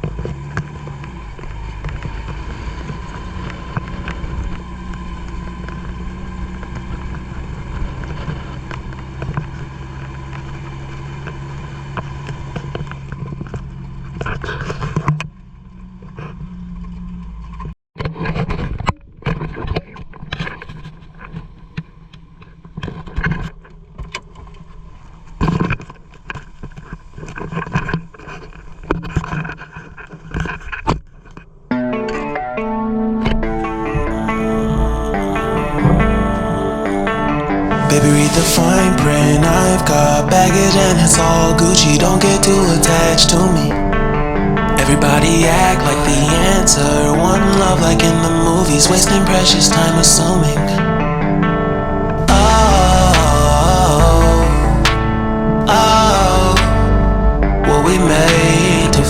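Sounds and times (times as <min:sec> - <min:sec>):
vehicle engine droning: 0:00.0 - 0:17.8, 0:32.4 - 0:59.0.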